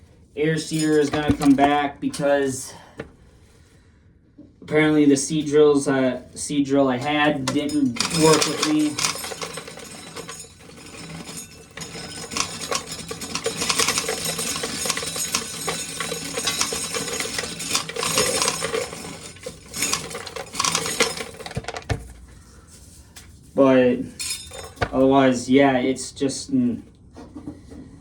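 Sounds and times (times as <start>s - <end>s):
kernels rattling against metal: 0.4s - 2.6s, 7.0s - 23.0s, 24.0s - 25.6s.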